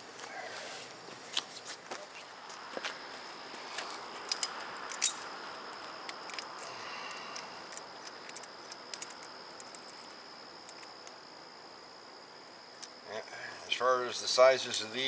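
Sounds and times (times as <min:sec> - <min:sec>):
high insect drone: 0:00.0 - 0:15.0
metallic tool clicks and clinks: 0:04.3 - 0:05.3, 0:06.1 - 0:10.0.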